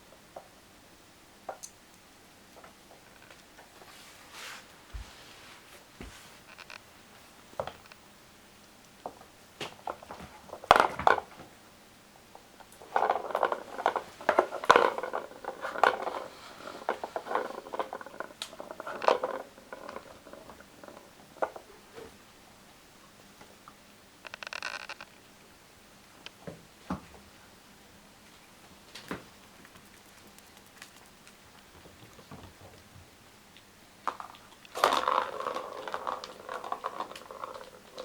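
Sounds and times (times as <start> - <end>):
rustling: 3.1 - 6.8.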